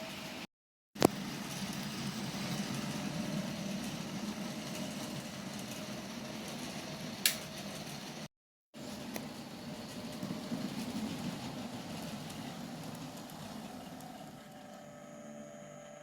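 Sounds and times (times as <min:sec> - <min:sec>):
wheel noise on rails: 0:00.0 - 0:16.0
sharp click: 0:07.2 - 0:07.4.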